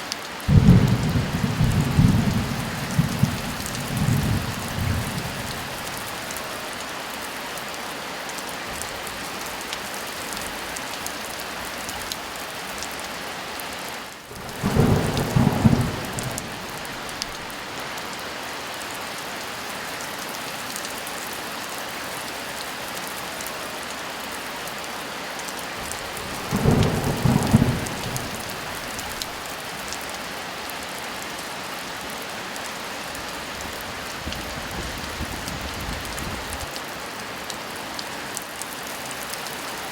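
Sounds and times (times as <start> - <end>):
rolling thunder claps: 0.5 - 5.6, 14.3 - 17.5, 26.2 - 29.4
heavy rain hissing: 0.5 - 8.0, 12.4 - 18.6, 23.2 - 39.9.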